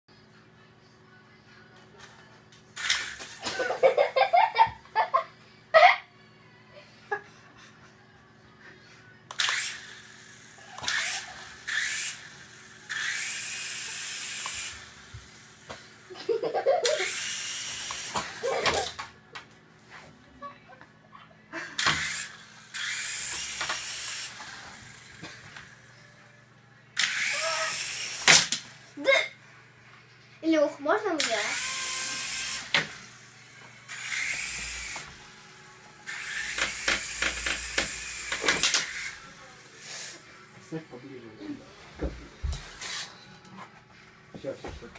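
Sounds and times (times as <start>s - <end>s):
toy helicopter rotor whirring: 2.8s - 4.4s, 9.3s - 19.1s, 21.8s - 26.2s, 27.0s - 28.8s, 31.1s - 40.3s, 42.6s - 43.2s
laughter: 3.4s - 6.1s, 6.8s - 8.1s, 16.1s - 17.1s.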